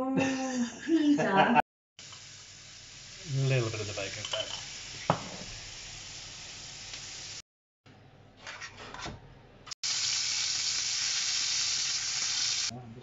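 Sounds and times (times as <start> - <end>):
bacon sizzling in hot fat: 2.0 - 7.4, 9.8 - 12.7
mushrooms sizzling in a frying pan: 2.0 - 7.4, 9.8 - 12.7.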